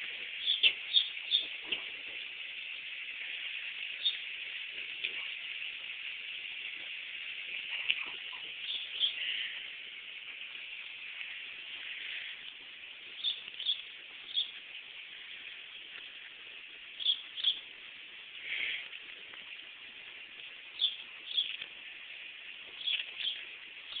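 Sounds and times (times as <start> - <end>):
steady outdoor hiss: 0.0 - 24.0
bird chirping: 0.4 - 1.9, 4.0 - 4.2, 7.7 - 9.4, 13.1 - 14.6, 17.0 - 17.6, 20.8 - 21.6, 22.8 - 24.0.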